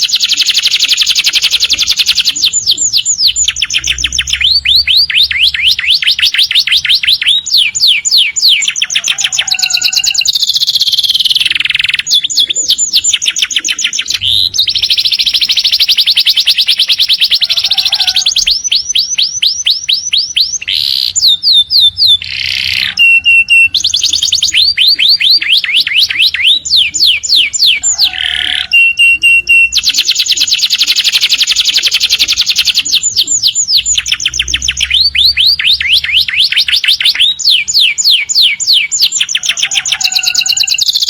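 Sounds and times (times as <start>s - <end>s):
canary singing trills: 0.0s - 41.0s.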